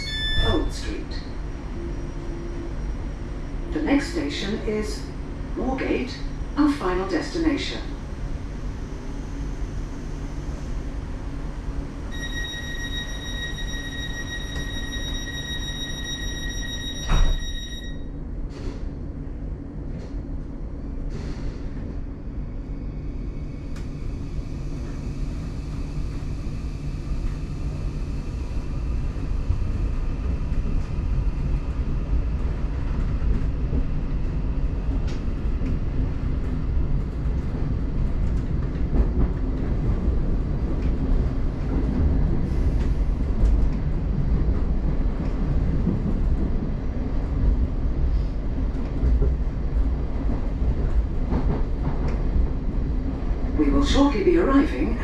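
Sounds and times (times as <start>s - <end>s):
door warning tone: 0.0s - 0.8s, 12.1s - 18.1s
train wheels rumbling: 18.4s - 55.0s.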